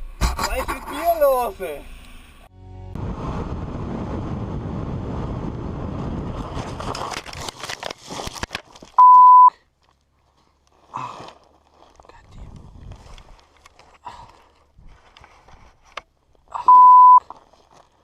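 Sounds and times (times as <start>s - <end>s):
noisy rumble: 0.0s - 7.1s
loud electronic beep: 16.7s - 17.2s.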